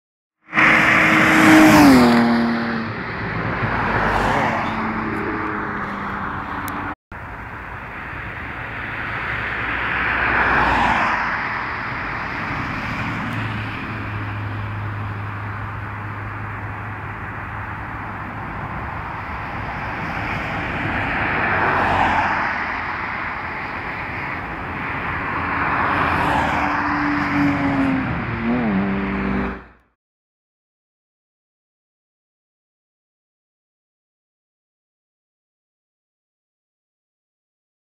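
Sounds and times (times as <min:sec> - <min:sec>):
car engine and road noise: 0:00.4 - 0:30.0
car passing at high speed: 0:00.5 - 0:07.0, 0:08.0 - 0:29.8.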